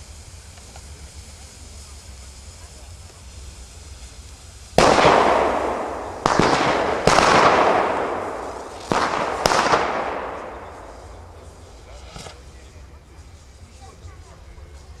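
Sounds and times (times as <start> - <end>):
firework fountain bangs and crackle: 0.0 - 15.0.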